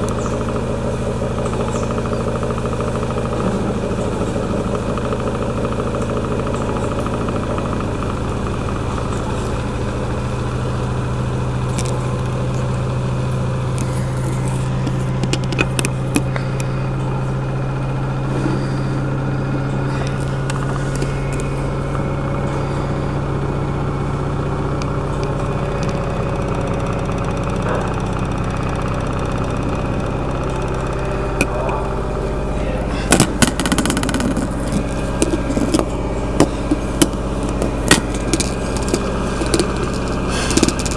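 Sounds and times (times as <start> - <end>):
washing machine spinning: 0.0 - 40.9.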